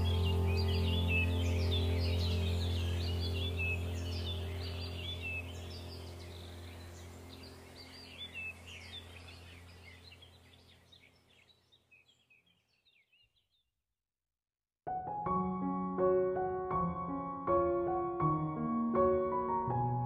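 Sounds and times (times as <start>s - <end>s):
low steady hum: 0.0s - 11.3s
birds chirping: 0.0s - 13.7s.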